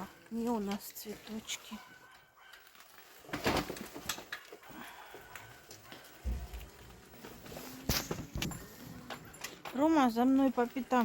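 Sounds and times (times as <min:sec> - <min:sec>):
clicks and rustles: 0:00.2 - 0:11.0.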